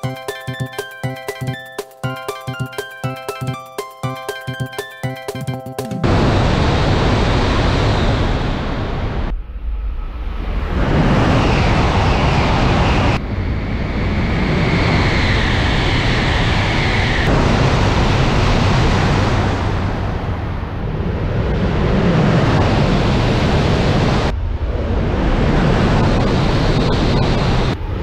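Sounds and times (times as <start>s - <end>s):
high-speed train rushing past: 6.0s - 27.8s.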